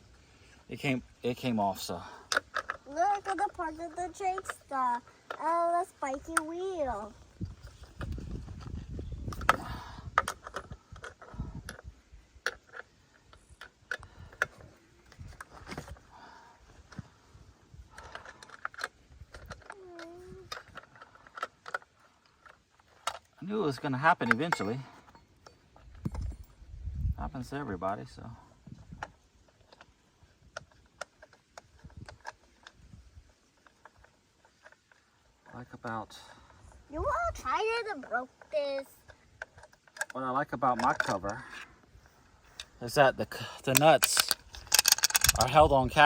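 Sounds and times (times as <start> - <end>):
metallic clicks and clinks: 24.2 - 26.6, 43.6 - 46.0.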